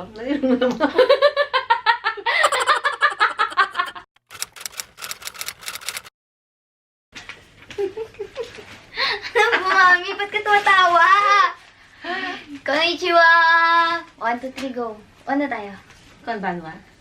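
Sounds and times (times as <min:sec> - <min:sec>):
woman laughing: 0:00.9 - 0:04.1, 0:07.8 - 0:09.8.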